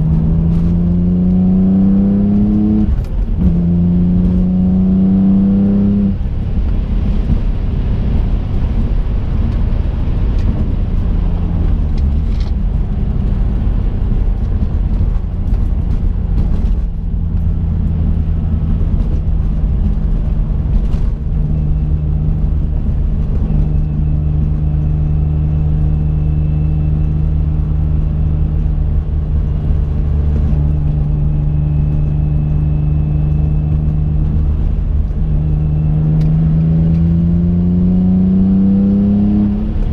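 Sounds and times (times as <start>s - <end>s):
car engine cruising: 0.0s - 39.9s
tyre and road noise: 0.0s - 39.9s.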